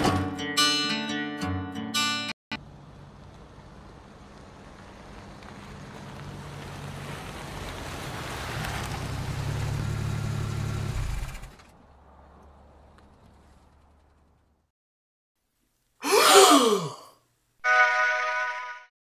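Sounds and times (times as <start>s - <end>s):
car driving past: 2.6s - 14.4s
steady engine hum: 2.6s - 14.7s.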